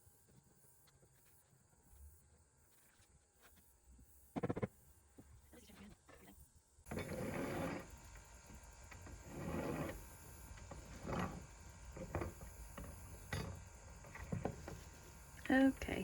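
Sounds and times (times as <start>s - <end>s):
shingles scraping and rasping: 6.9s - 8.0s, 9.0s - 15.1s.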